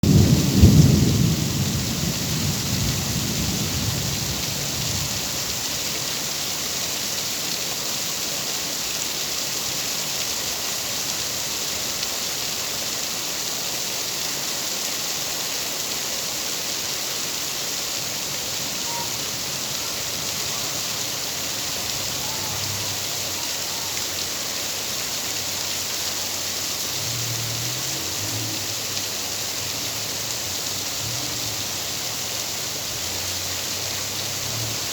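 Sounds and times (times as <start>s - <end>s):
low rumble of thunder: 0.0s - 5.6s
heavy rain: 0.0s - 34.9s.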